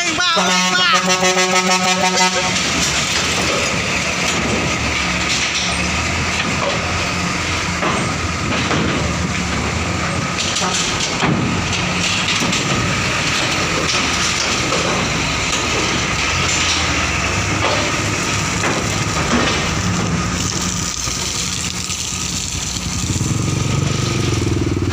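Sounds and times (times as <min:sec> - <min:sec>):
heavy truck engines running: 0:00.0 - 0:24.9
clanks on steel ramp: 0:01.8 - 0:20.8.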